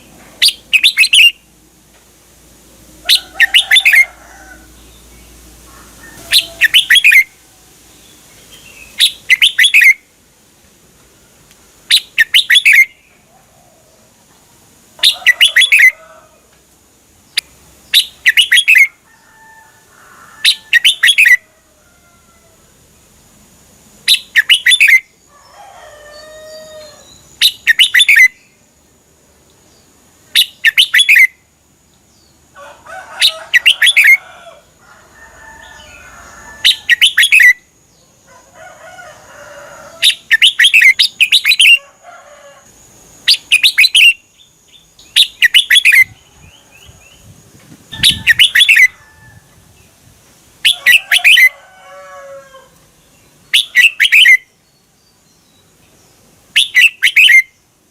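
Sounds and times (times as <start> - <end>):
bulbul singing fluttering phrases: 4.8 - 7.3, 17.3 - 19.0, 43.3 - 49.0.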